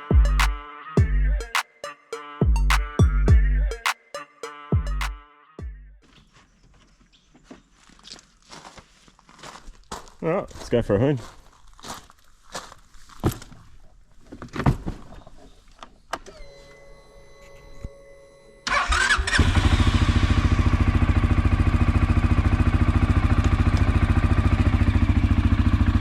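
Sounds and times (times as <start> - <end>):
quad bike engine starting and idling: 18.6 - 26.0.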